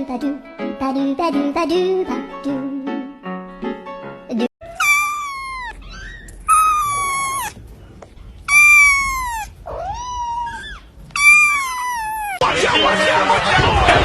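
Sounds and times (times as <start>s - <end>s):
pet animal high-pitched cries: 4.6s - 7.7s, 8.5s - 12.4s.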